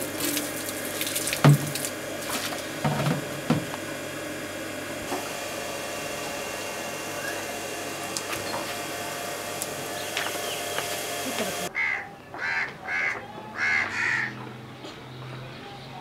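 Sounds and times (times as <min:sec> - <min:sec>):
bird calling: 0:09.8 - 0:14.4.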